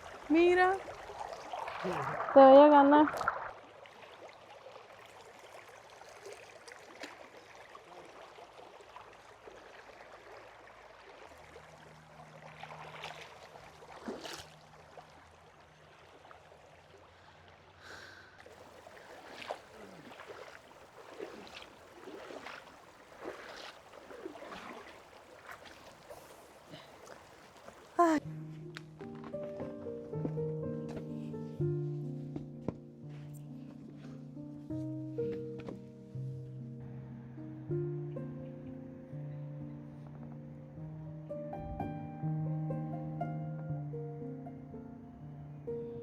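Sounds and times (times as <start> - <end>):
short knocks and splashes: 0.0 - 4.5, 6.1 - 7.7, 12.6 - 15.1, 18.4 - 28.2
river flowing faintly: 0.0 - 46.0.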